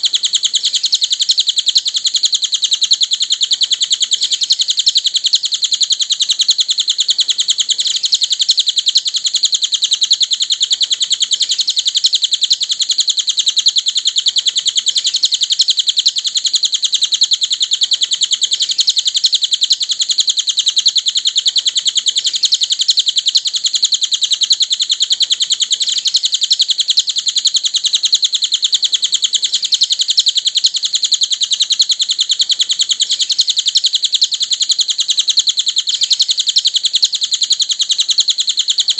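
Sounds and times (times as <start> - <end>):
bird chattering trill: 0.0 - 38.9.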